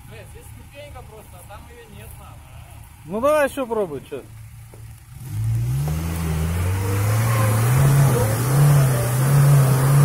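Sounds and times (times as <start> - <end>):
off-road vehicle engine revving: 5.0 - 10.0.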